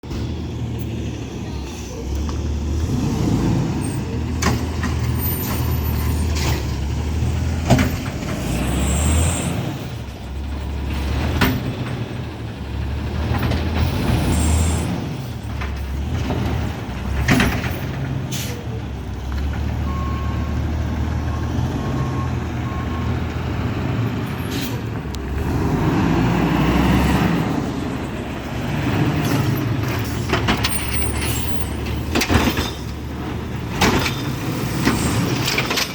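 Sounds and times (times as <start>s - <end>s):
garbage truck engine running: 0.0s - 35.9s
knocks and clanks from truck: 4.2s - 18.6s, 28.1s - 35.9s.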